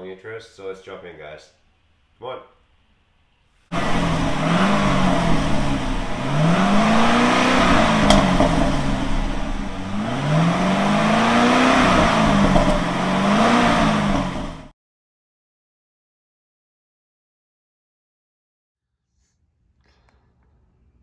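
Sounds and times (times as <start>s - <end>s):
car engine revving: 3.7s - 14.7s.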